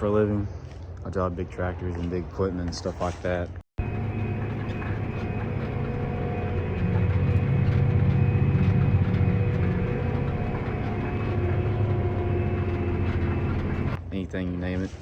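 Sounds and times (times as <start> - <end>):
tractor engine running: 3.8 - 14.0.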